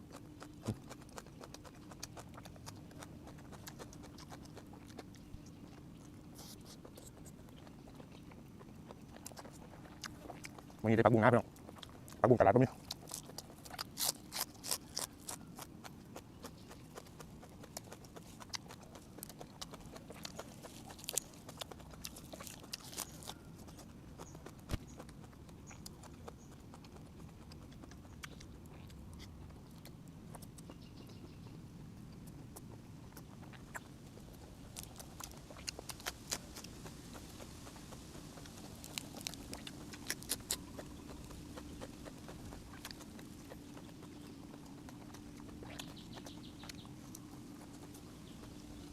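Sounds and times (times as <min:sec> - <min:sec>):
wet mouth clicks and smacks: 0:00.0 - 0:10.8, 0:32.2 - 0:48.1
faint low hum: 0:00.0 - 0:48.9
person chewing: 0:00.0 - 0:48.9.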